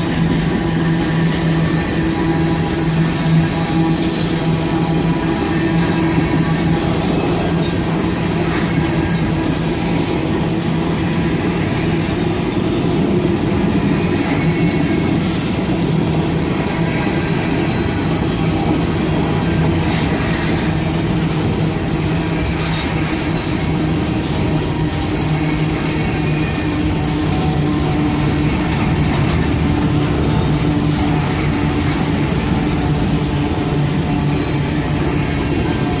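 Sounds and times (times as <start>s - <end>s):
constant low hum: 0.0s - 36.0s
train wheels on rails: 0.0s - 36.0s.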